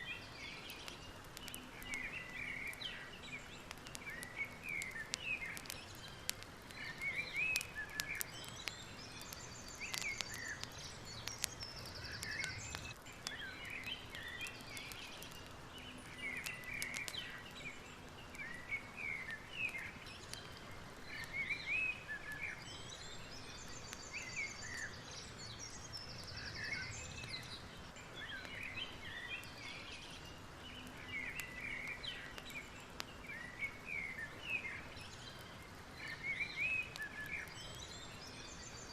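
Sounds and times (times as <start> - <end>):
background hiss: 0.0 - 38.9
small birds chirping: 0.0 - 38.9
faint clicks: 0.6 - 17.7, 36.9 - 37.5.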